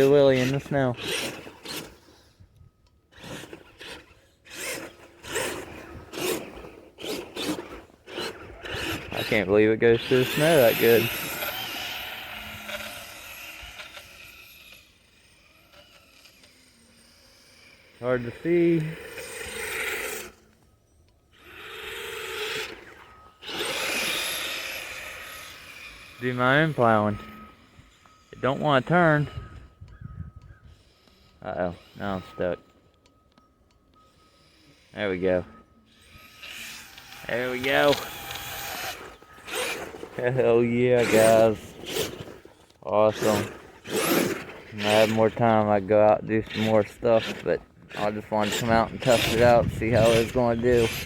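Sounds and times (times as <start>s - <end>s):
electric motor throttling: 0.0s - 2.4s, 3.1s - 20.7s, 21.3s - 29.7s, 34.0s - 51.0s
toy truck tyres digging in snow: 0.0s - 2.5s, 3.1s - 20.7s, 21.4s - 29.5s, 30.7s - 32.7s, 34.0s - 51.0s.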